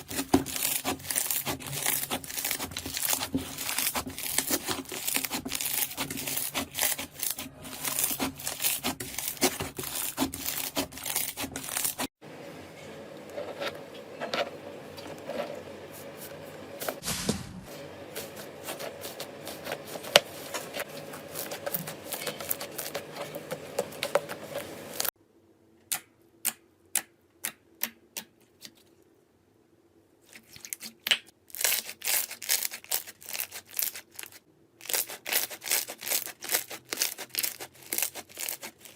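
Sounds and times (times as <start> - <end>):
slime crackling and popping: 0.0 - 12.0.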